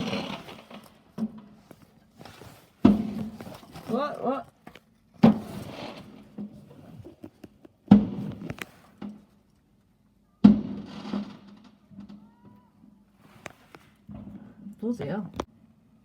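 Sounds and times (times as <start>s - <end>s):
loud firework bangs: 10.5s - 11.7s.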